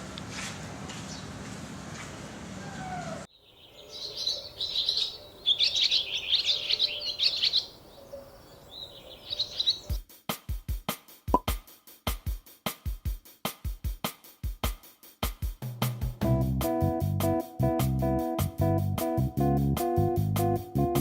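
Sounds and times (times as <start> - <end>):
small birds twittering: 1.0 - 1.4, 2.6 - 10.0.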